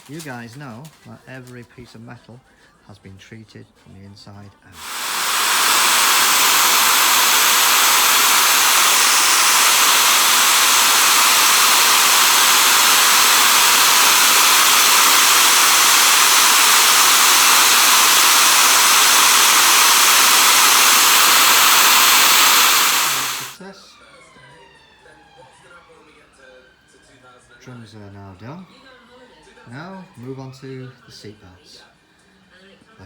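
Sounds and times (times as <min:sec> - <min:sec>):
loud steady hiss: 0:04.8 - 0:23.6.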